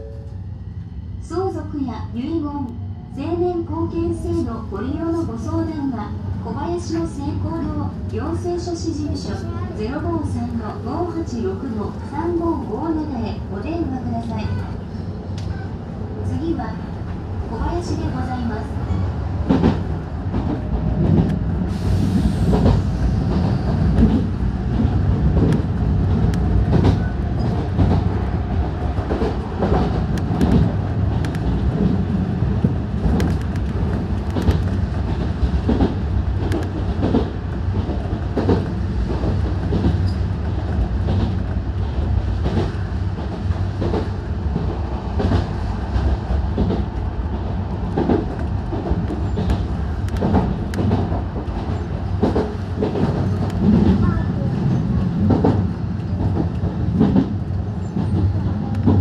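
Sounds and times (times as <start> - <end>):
train interior rumble: 0.0 - 59.0.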